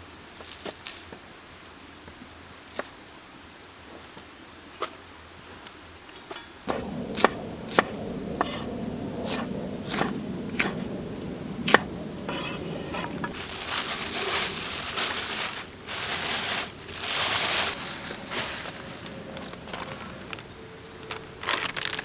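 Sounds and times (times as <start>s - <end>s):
low rustle: 6.7s - 22.0s.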